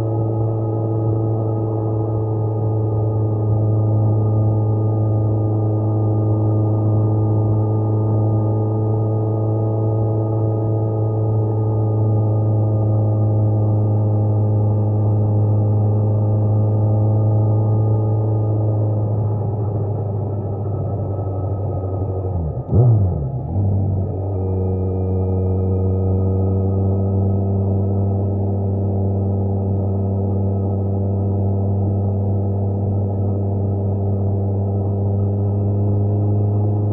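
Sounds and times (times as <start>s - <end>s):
motorcycle engine droning: 0.0s - 36.9s.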